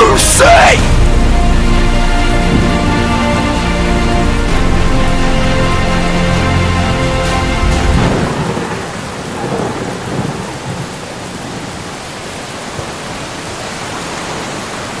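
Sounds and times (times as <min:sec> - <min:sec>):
steady rain: 0:00.0 - 0:15.0
low thunder rumble: 0:00.8 - 0:13.0.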